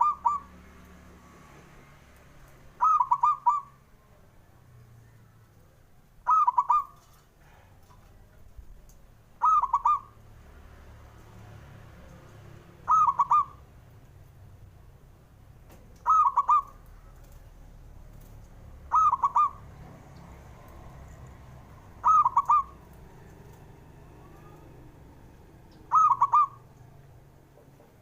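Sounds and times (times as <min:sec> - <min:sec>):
dove cooing: 0:00.0 - 0:00.5, 0:02.8 - 0:03.8, 0:06.2 - 0:07.2, 0:09.4 - 0:10.1, 0:12.8 - 0:13.6, 0:16.0 - 0:17.0, 0:18.9 - 0:19.8, 0:21.9 - 0:23.5, 0:25.8 - 0:26.8.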